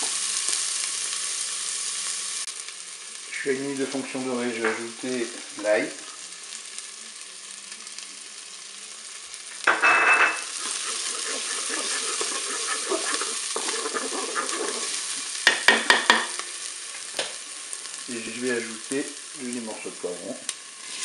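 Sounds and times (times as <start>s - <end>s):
onion and garlic sizzling in oil: 0.0s - 21.0s
wooden spatula scraping bowl: 10.4s - 16.1s.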